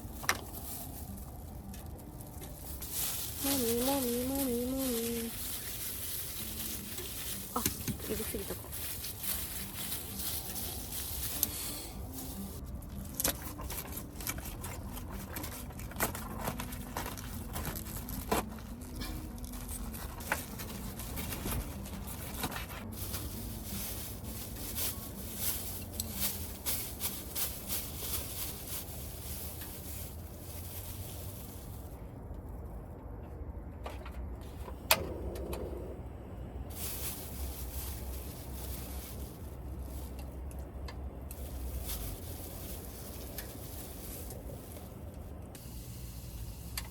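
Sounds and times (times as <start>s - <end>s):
food crackling and hissing: 2.7s - 12.6s, 41.4s - 46.9s.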